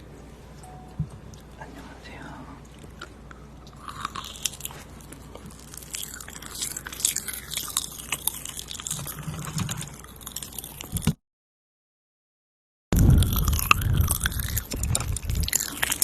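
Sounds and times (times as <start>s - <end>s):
crunchy chewing crackles: 2.4s - 11.2s, 13.0s - 16.0s.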